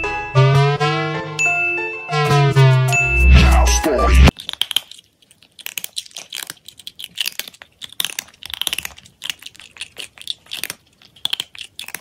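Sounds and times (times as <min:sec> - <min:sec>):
crunchy food being chewed: 0:04.3 - 0:12.0.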